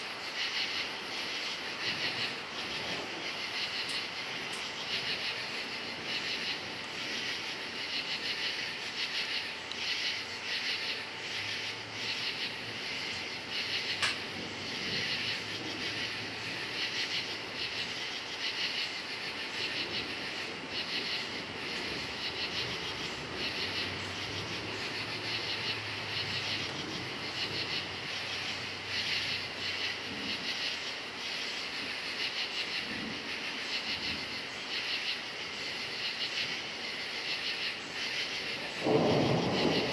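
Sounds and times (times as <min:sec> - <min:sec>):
crickets chirping: 0:00.0 - 0:39.9
distant thunder rumble: 0:11.4 - 0:17.5, 0:19.6 - 0:30.6, 0:38.3 - 0:39.9.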